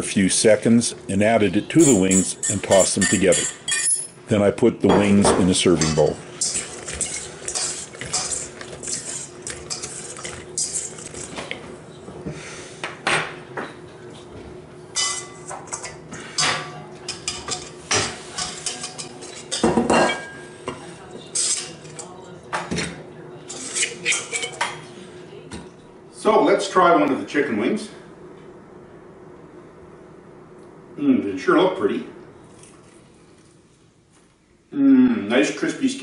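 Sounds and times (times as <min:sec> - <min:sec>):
faint steady hum: 0:00.0 - 0:36.0
utensils clinking against bowl: 0:01.8 - 0:04.2, 0:05.7 - 0:11.6, 0:14.9 - 0:24.8.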